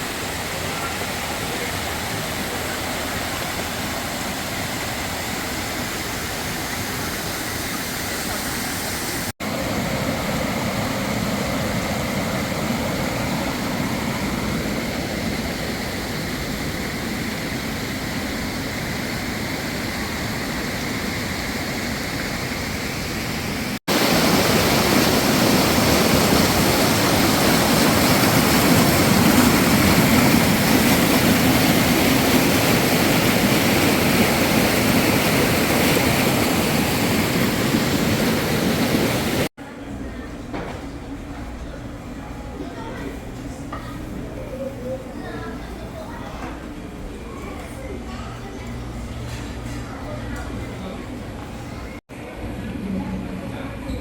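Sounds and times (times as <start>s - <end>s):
rush of flowing water: 0.0s - 39.5s.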